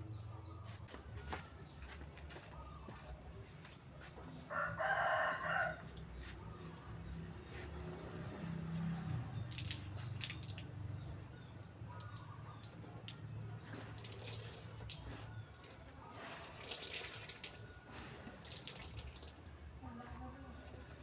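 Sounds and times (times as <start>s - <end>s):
water dripping and splashing: 5.9s - 19.4s.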